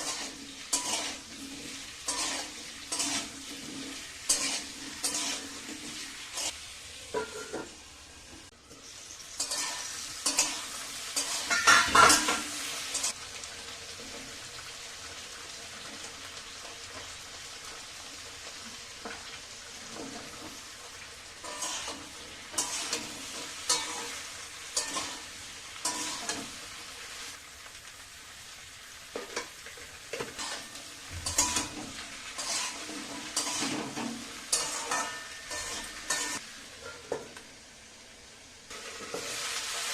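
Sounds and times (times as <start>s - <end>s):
spatula scraping pan: 0.0s - 7.8s, 9.4s - 13.2s, 21.4s - 26.7s, 29.2s - 37.2s, 38.7s - 39.6s
vegetables sizzling in oil: 0.0s - 39.9s.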